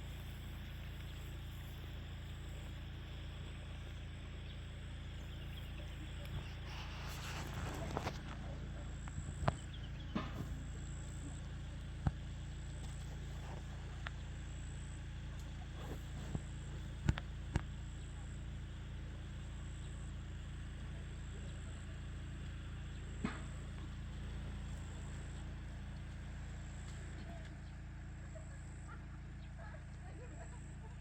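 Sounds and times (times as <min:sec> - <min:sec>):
steady low rumble: 0:00.0 - 0:18.5.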